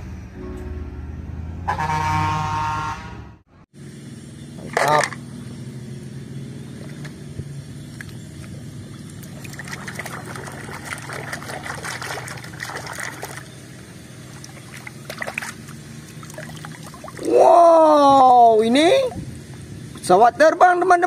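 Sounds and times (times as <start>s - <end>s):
low hum: 0.0s - 20.0s
water sloshing in a bucket: 7.8s - 17.6s.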